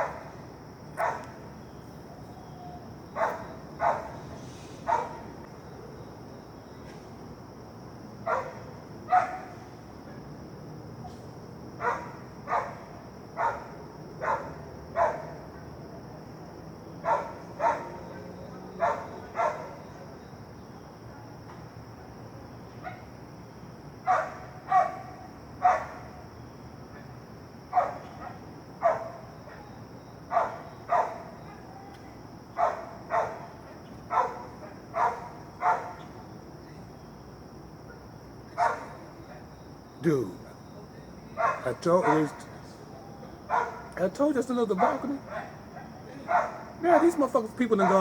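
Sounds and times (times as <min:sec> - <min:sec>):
dog barking: 0:00.0 - 0:00.4, 0:01.0 - 0:01.4, 0:03.1 - 0:05.4, 0:08.2 - 0:09.6, 0:11.8 - 0:15.7, 0:17.0 - 0:20.0, 0:22.8 - 0:23.1, 0:24.0 - 0:26.2, 0:27.7 - 0:31.8, 0:32.5 - 0:36.1, 0:37.8 - 0:39.1, 0:41.4 - 0:42.6, 0:43.5 - 0:44.0, 0:44.7 - 0:48.0.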